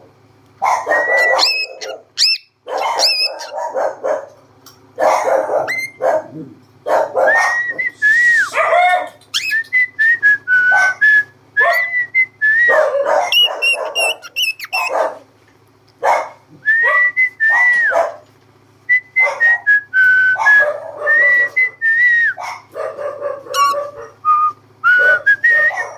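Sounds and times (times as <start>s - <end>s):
cockatiel whistling: 0.8s - 3.6s, 5.7s - 6.0s, 7.2s - 8.6s, 9.3s - 15.0s, 23.5s - 25.9s
cockatiel chattering calls: 0.8s - 3.8s, 5.6s - 6.0s, 9.0s - 9.6s, 13.2s - 15.0s, 23.5s - 24.0s.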